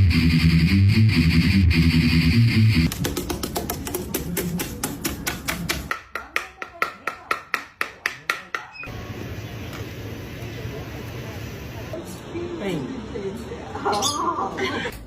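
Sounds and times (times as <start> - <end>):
quick sharp taps: 2.9 - 5.9.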